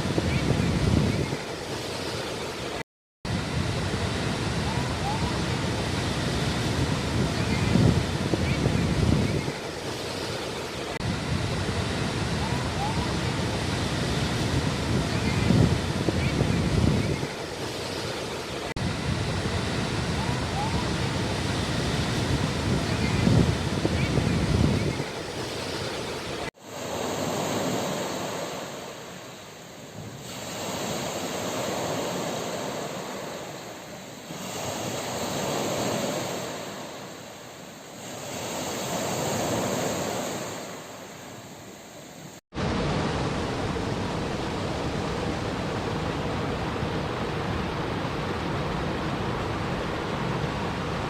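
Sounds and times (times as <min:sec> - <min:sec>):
sea waves washing onto shore: 0:00.0 - 0:51.0
steady rushing noise: 0:02.4 - 0:37.7.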